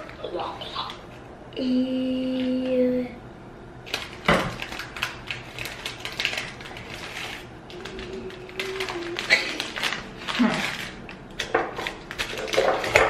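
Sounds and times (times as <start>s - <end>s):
snack wrapper crinkling: 3.9s - 13.0s.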